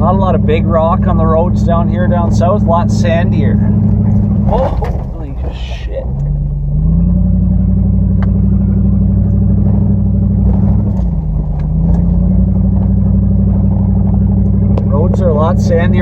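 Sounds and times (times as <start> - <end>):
truck engine under load: 0.0 - 16.0
sharp knocks and rattles: 3.6 - 6.4.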